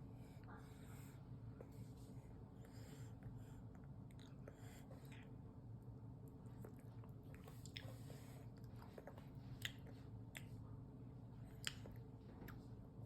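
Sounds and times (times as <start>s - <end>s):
baby chewing and smacking lips: 6.2s - 10.7s, 11.4s - 12.8s.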